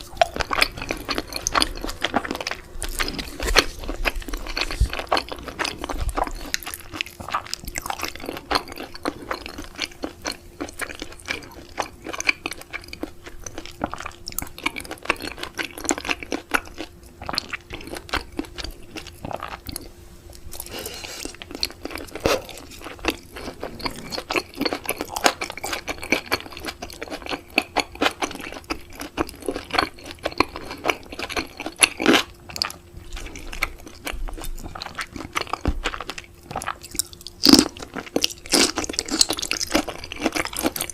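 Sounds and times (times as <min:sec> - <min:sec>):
chewing raw seafood: 0:00.0 - 0:40.9.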